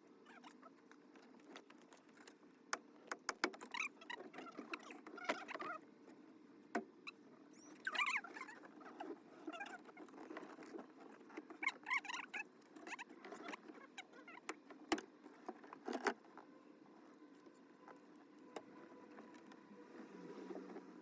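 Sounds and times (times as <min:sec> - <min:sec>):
small squeaks and clicks: 0:00.2 - 0:19.7.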